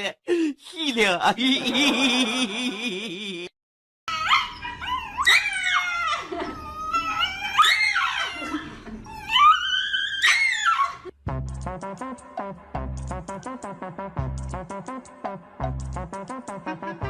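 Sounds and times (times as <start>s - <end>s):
dog whining: 4.1s - 11.1s.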